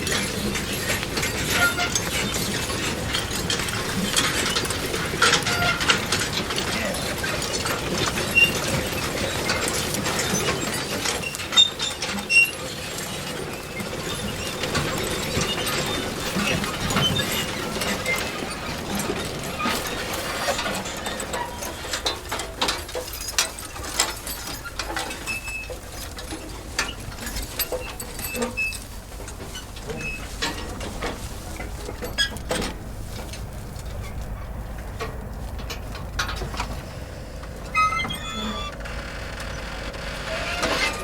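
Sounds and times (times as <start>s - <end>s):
manure spreader clanking and rattling: 0.0s - 41.0s
short high squeaks: 1.5s - 2.4s, 37.1s - 41.0s
low machine rumble: 26.2s - 41.0s.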